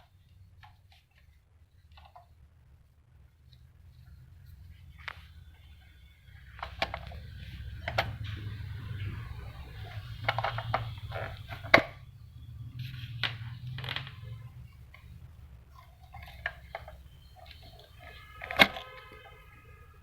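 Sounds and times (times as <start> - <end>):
steady low hum: 0.0 - 20.0
clicks and knocks of parts handled: 16.0 - 19.1.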